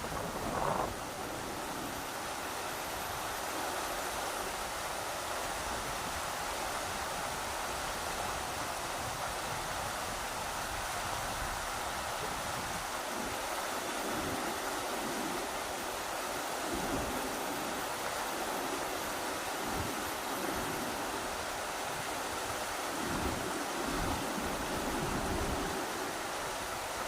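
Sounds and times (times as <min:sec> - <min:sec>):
wind gusts rumbling: 0:00.0 - 0:02.7, 0:09.8 - 0:27.0
river water rushing: 0:00.0 - 0:27.0.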